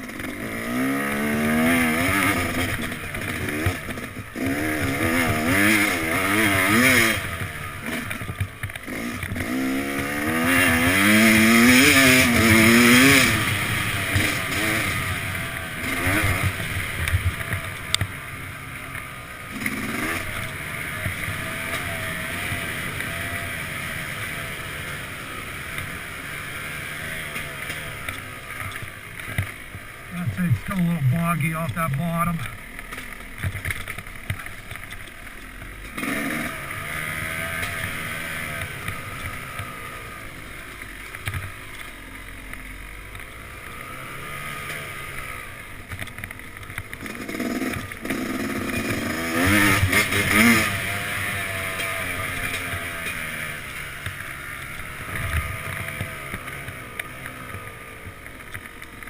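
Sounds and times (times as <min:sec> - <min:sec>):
dirt bike engine revving: 0:00.0 - 0:08.2, 0:08.8 - 0:18.7, 0:19.3 - 0:29.4, 0:35.9 - 0:40.1, 0:47.0 - 0:54.0.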